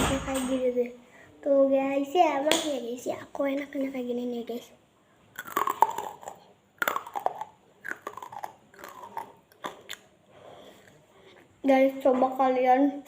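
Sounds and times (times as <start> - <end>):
crunchy biting and chewing: 5.4 - 10.1.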